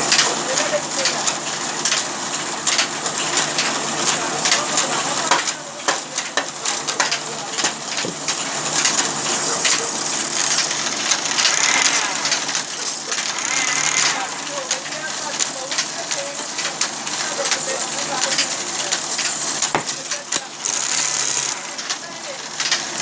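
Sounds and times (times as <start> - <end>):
sawmill machinery humming: 0.0 - 23.0
clattering knocks: 19.6 - 20.7.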